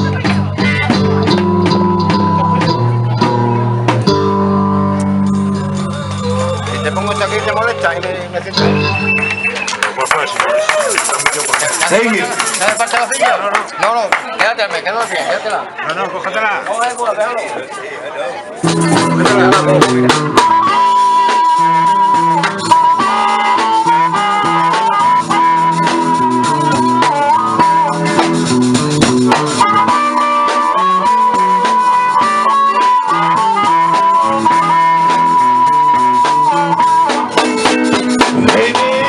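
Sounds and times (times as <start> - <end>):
repeating guitar accompaniment: 0.0 - 14.0, 18.4 - 39.0
harmonica long wavering notes: 1.0 - 9.8, 18.6 - 39.0.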